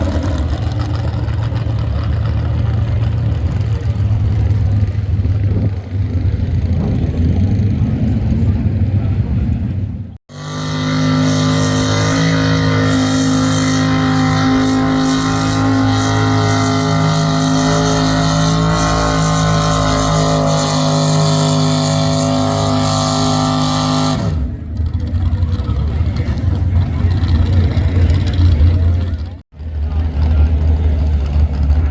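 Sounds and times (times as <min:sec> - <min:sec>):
tractor engine at high revs: 0:00.0 - 0:31.9.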